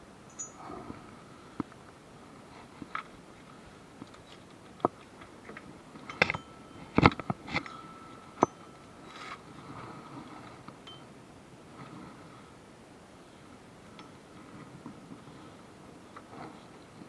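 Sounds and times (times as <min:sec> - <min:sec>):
metallic clinks and knocks: 0:00.3 - 0:00.6, 0:06.0 - 0:09.4.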